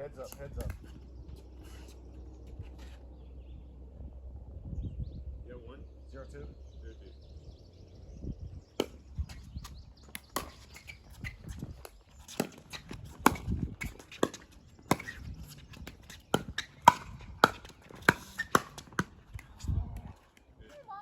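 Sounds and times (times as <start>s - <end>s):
footsteps on court: 9.3s - 21.0s
paddles hitting plastic ball: 10.1s - 10.9s, 15.8s - 19.6s.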